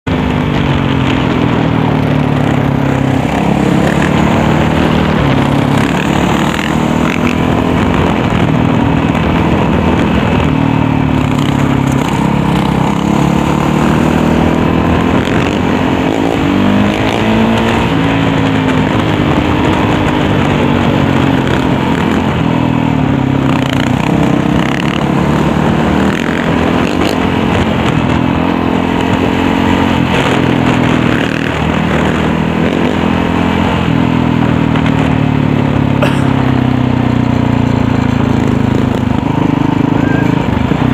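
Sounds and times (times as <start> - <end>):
dirt bike engine revving: 2.0 - 40.9.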